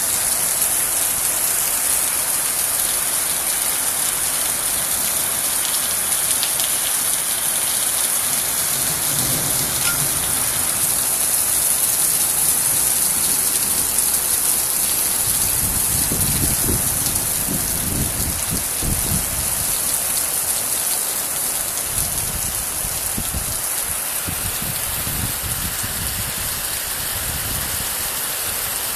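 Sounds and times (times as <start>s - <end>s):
steady rain hiss: 0.0s - 28.9s.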